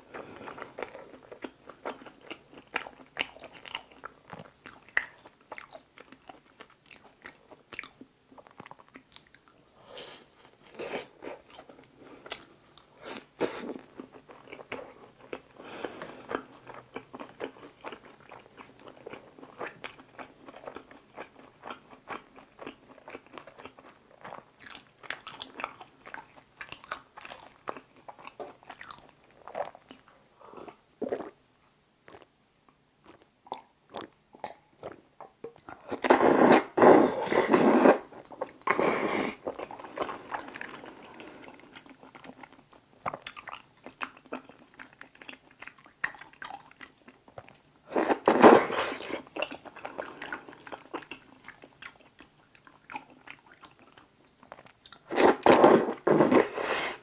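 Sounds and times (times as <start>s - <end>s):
chewing with wet mouth clicks: 0.7s - 9.6s, 39.5s - 47.8s, 49.3s - 55.1s.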